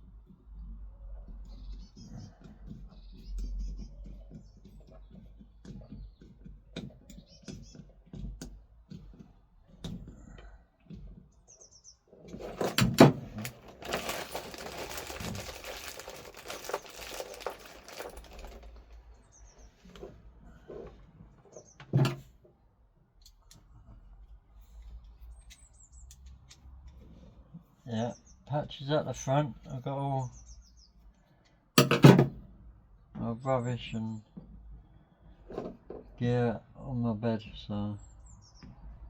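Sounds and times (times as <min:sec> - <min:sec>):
small handling clicks and knocks: 0:02.4 - 0:11.3, 0:12.3 - 0:19.1, 0:31.4 - 0:32.4
crinkly rustling: 0:12.4 - 0:19.6.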